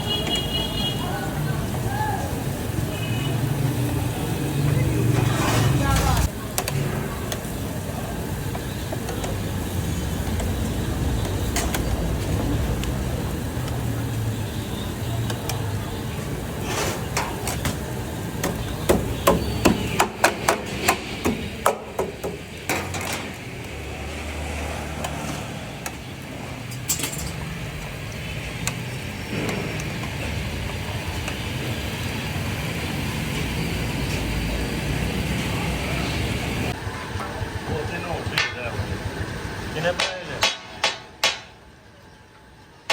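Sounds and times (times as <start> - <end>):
traffic and street noise: 0.0 - 42.9.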